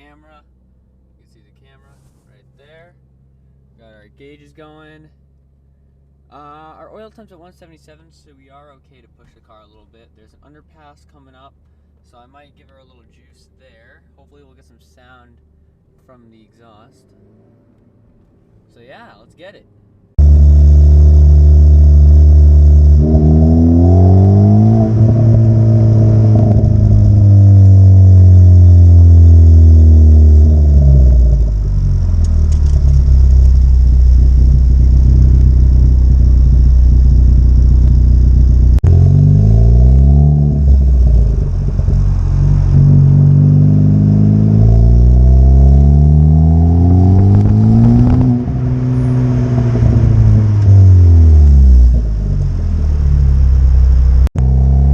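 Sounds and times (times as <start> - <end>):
car engine accelerating: 20.1 - 54.9.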